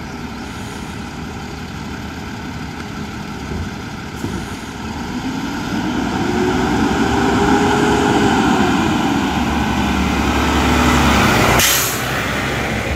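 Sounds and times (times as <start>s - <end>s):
garbage truck engine revving: 4.2s - 12.9s.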